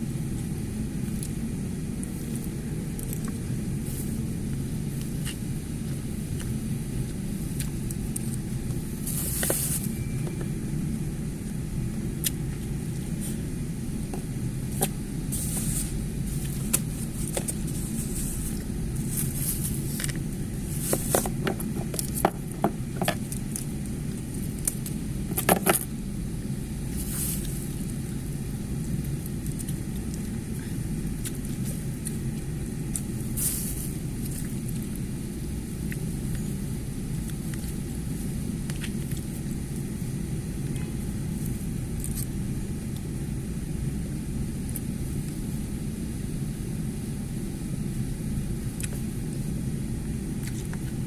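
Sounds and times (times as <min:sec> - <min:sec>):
steady low rumble: 0:00.0 - 0:51.0
chewing and crunching: 0:00.2 - 0:09.9, 0:14.2 - 0:26.0, 0:26.8 - 0:40.1, 0:41.4 - 0:43.1, 0:50.3 - 0:51.0.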